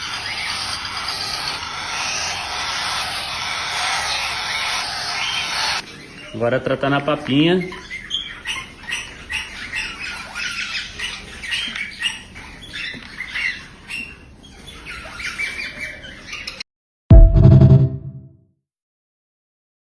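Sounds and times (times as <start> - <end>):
parrot chicks squawking: 0.0 - 16.6
loud musical note: 17.1 - 18.3.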